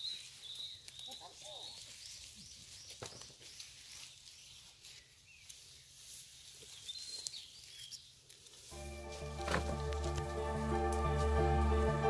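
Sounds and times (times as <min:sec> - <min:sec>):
small bird chirping: 0:06.6 - 0:08.2.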